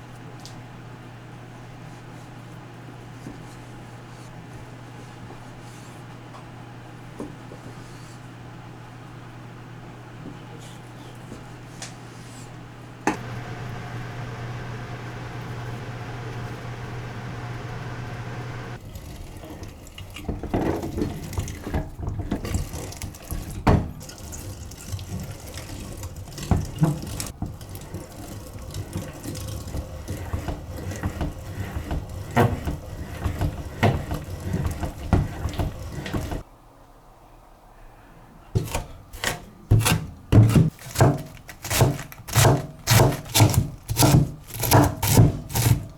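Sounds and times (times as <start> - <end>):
tap running into sink: 19.4 - 36.4
kitchen clatter and knocks: 20.3 - 36.4.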